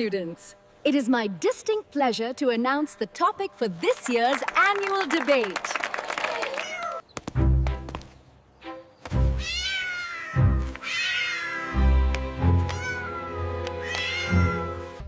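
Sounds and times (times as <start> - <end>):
cat meowing: 6.6 - 7.0, 9.4 - 11.8, 12.6 - 14.9.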